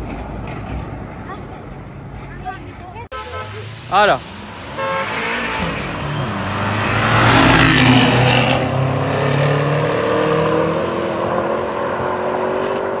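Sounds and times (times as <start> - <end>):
cars accelerating past: 3.6 - 13.0.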